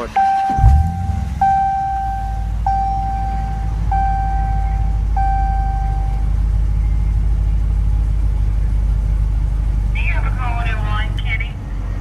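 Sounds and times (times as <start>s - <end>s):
dashboard warning chime: 0.0s - 6.3s
car engine idling: 0.0s - 12.0s.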